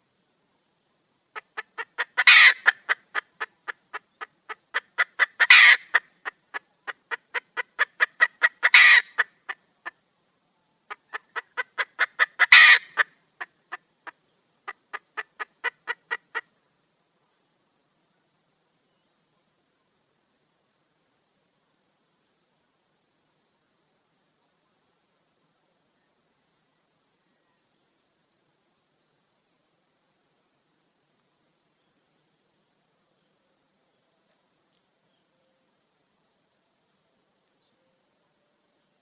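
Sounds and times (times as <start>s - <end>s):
hen clucking: 1.4s - 10.0s, 10.9s - 16.5s
hen squawking: 1.6s - 3.5s, 4.5s - 6.0s, 6.9s - 9.3s, 11.1s - 13.1s.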